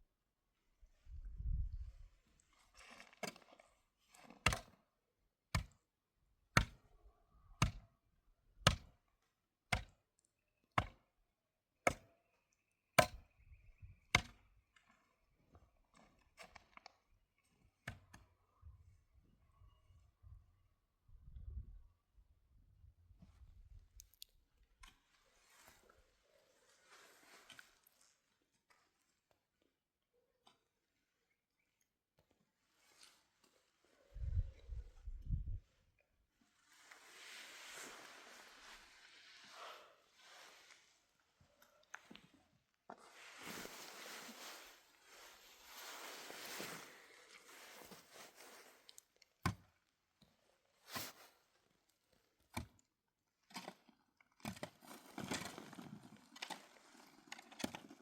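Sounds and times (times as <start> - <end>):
soft rustles: 36.4 - 49.2.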